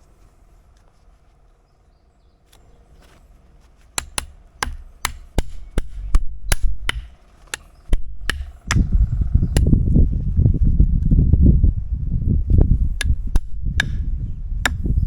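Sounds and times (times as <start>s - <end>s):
hand tool striking blows: 3.0s - 9.8s, 13.0s - 14.1s
low rough knocking noise: 4.0s - 10.0s.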